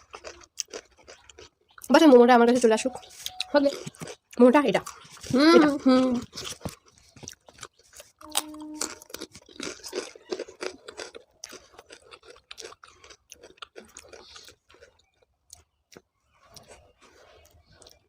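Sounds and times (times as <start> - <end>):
person chewing crunchy food: 0.0 - 1.9, 3.0 - 18.0
person humming: 5.3 - 6.2, 8.2 - 9.1.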